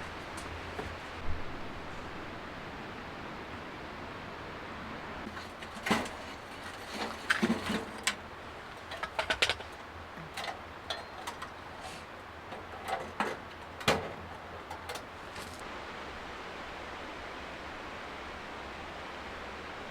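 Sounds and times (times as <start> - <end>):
steady hiss: 0.0 - 19.9
light clicks and knocks of gear: 5.3 - 15.6.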